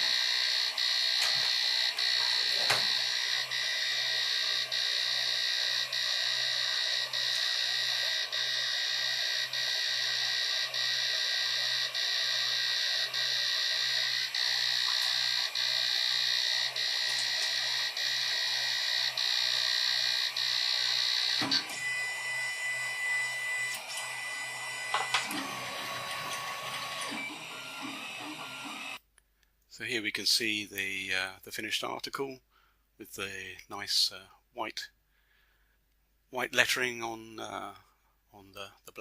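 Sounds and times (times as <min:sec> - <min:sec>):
printer motor and fan whine: 0:00.0 - 0:29.0
printer click: 0:24.9 - 0:28.4.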